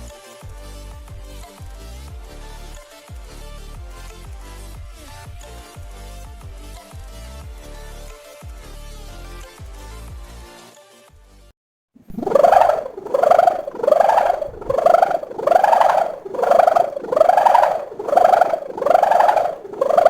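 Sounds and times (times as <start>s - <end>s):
kite hummer buzzing: 12.1s - 20.0s.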